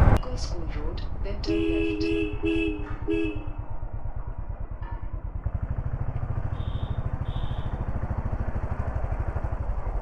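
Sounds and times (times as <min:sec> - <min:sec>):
motorcycle engine running: 0:02.5 - 0:10.0.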